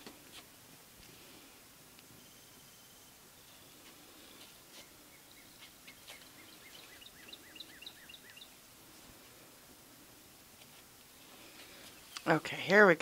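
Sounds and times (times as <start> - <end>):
faint bird chirps: 2.2 - 3.8, 4.8 - 8.6.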